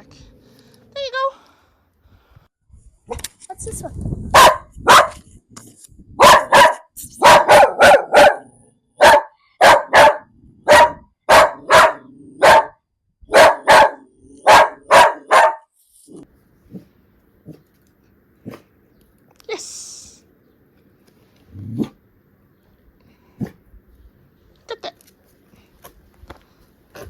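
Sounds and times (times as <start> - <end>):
dog barking: 4.3 - 5.2, 6.2 - 15.7.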